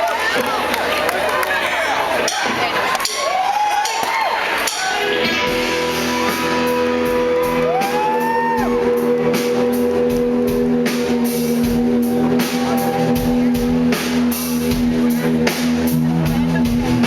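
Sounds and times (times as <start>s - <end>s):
guitar chords ringing: 4.7s - 15.0s.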